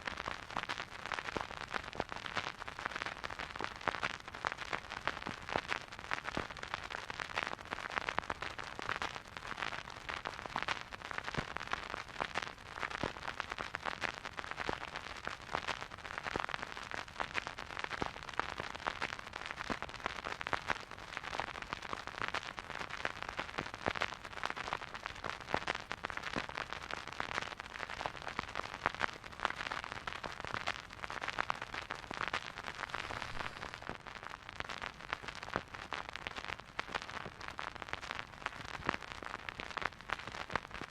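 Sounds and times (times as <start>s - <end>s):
vinyl record crackle: 0.0s - 40.9s
soft hiss: 32.5s - 34.1s.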